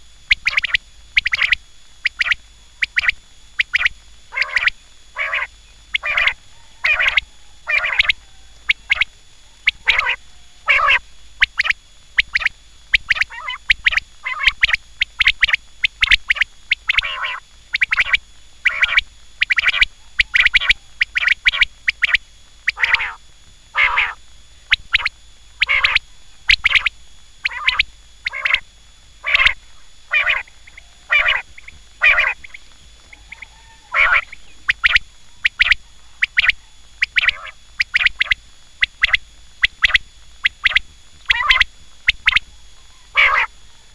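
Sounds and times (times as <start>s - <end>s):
quail calling: 0.3s - 28.6s, 29.2s - 43.9s.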